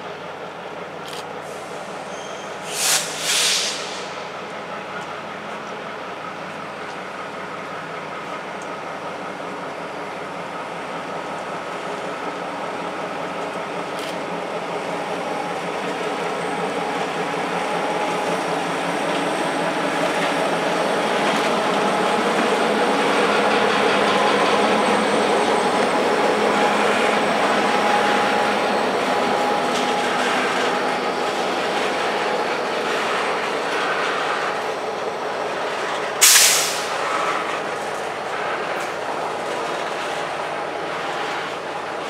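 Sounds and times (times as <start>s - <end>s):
train wheels rumbling on rails: 0.0s - 42.0s
loud burst of hiss: 2.6s - 4.2s, 36.2s - 37.0s.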